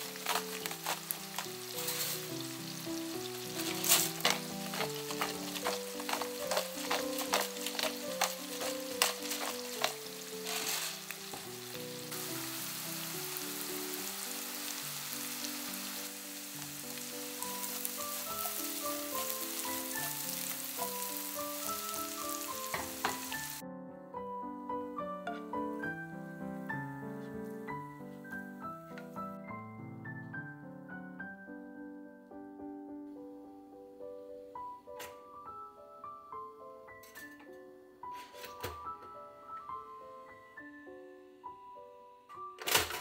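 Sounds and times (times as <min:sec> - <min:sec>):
bacon and mushrooms sizzling: 0:00.0 - 0:23.6.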